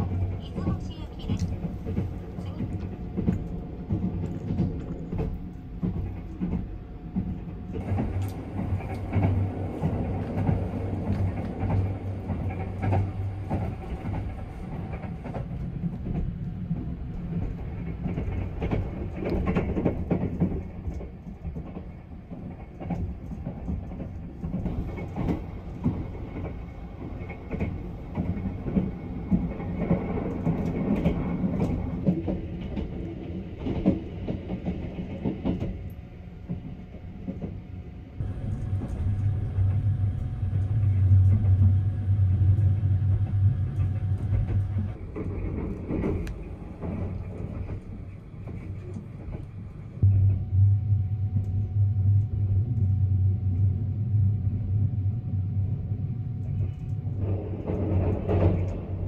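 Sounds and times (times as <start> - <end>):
train rumbling: 0.0 - 59.0
wheels clicking over rail joints: 0.1 - 37.6, 43.0 - 50.0.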